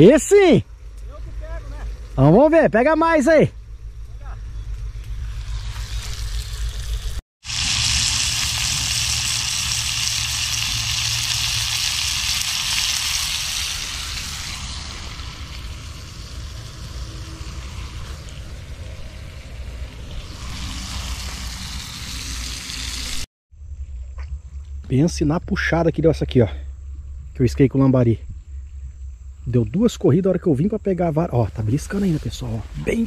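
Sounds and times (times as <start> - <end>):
low rumble: 0.6 - 33.0
chicken sizzling in hot oil: 5.4 - 23.3.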